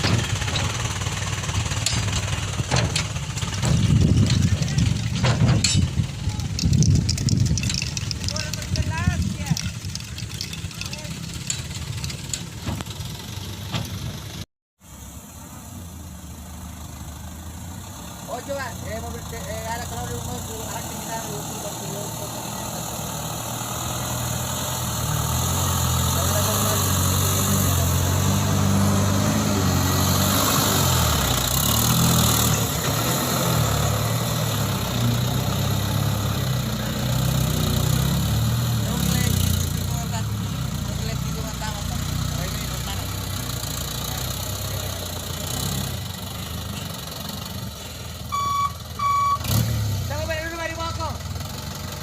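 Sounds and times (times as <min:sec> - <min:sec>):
diesel truck engine idling: 0:00.0 - 0:05.2, 0:38.4 - 0:49.5
diesel truck engine running: 0:00.0 - 0:52.0.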